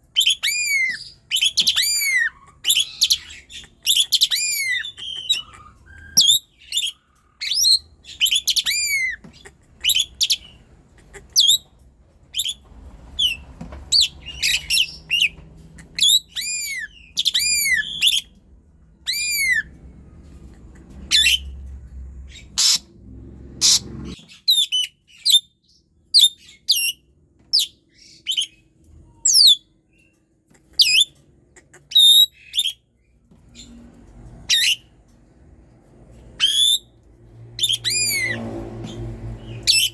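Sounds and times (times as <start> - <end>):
bird whistling song: 0.1 - 9.2, 9.8 - 10.6, 11.4 - 11.7, 12.3 - 18.4, 19.0 - 19.8, 21.1 - 21.6, 23.6 - 30.1, 30.8 - 31.1, 31.9 - 32.8, 34.5 - 34.9, 36.4 - 36.9, 37.6 - 39.9.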